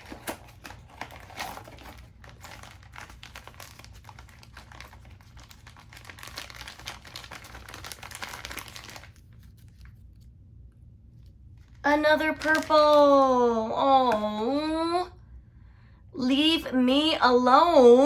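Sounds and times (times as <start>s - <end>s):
plastic packaging crinkling: 0.0s - 10.4s, 11.2s - 13.4s.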